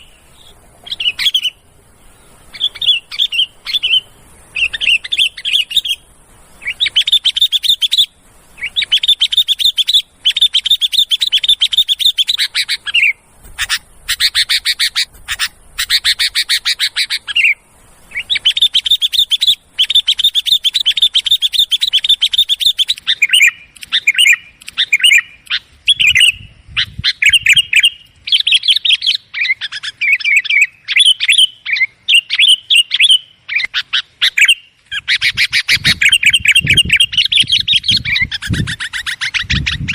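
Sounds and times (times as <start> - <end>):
bulbuls chattering: 0.0 - 39.9.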